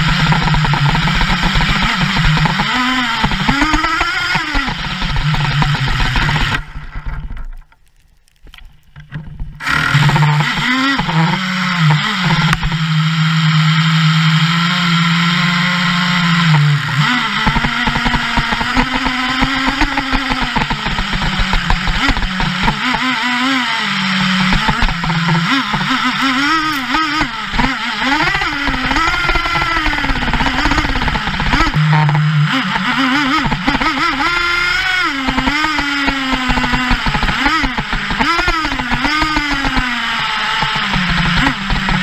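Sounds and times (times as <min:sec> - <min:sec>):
small engine revving: 0:00.0 - 0:07.2, 0:09.6 - 0:42.0.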